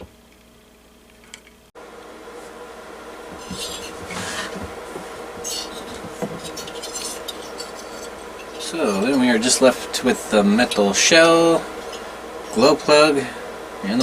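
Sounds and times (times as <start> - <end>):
steady hum: 0.0 - 14.0
scraping and rubbing of components: 3.3 - 9.6, 11.7 - 12.7.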